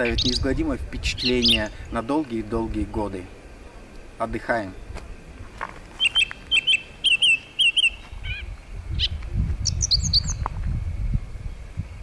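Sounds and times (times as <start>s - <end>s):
small bird chirping: 0.0s - 1.9s, 5.9s - 10.5s.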